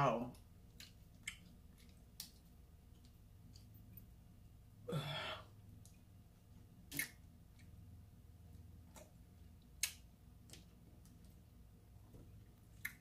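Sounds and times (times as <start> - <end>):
breathy sigh: 4.9 - 5.6.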